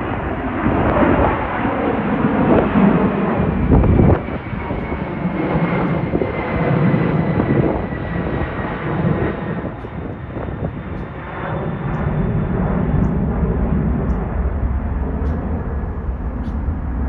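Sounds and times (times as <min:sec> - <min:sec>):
airliner engines rumbling: 0:00.0 - 0:17.0.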